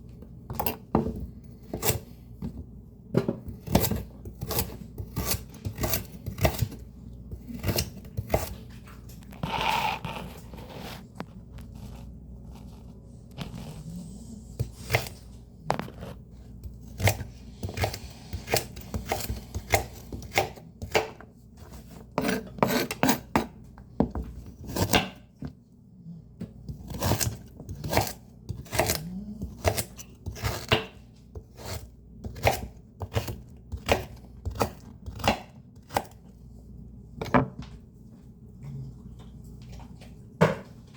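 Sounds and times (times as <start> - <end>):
knife chopping leafy greens: 3.2 - 8.6, 14.6 - 23.5, 26.7 - 36.2.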